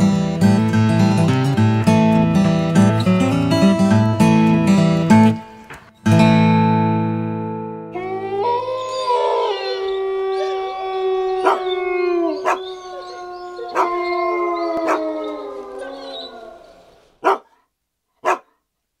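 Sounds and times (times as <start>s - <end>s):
dog howling: 7.9s - 17.4s.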